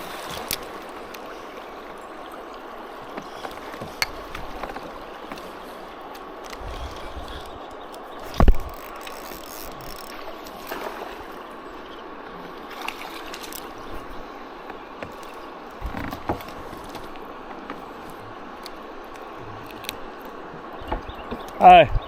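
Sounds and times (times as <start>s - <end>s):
river water rushing: 0.0s - 21.9s
kayak knocks and thumps: 2.5s - 7.4s, 8.2s - 11.3s, 12.7s - 18.4s, 20.5s - 22.0s.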